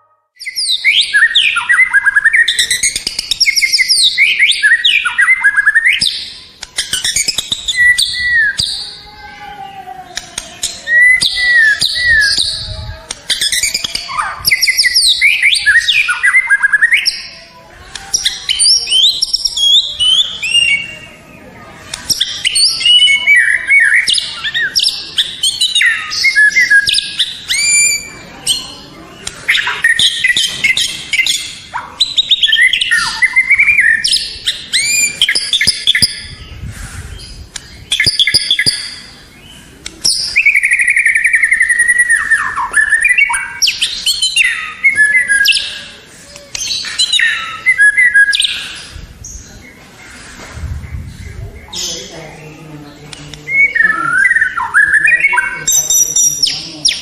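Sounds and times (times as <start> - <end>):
songbird whistling and trilling: 0.4 - 9.0, 10.6 - 17.4, 18.0 - 21.2, 22.0 - 49.7, 53.4 - 57.0.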